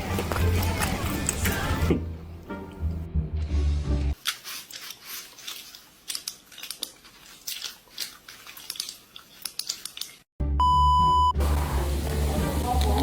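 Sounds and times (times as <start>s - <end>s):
chewing crunchy food: 4.2s - 10.3s.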